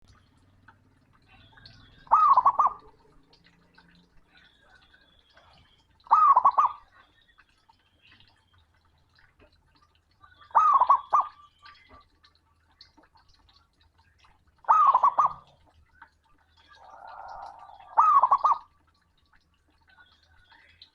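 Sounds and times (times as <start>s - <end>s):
dove cooing: 1.6s - 3.2s, 6.1s - 6.8s, 10.5s - 11.4s, 14.7s - 15.5s, 16.6s - 18.7s.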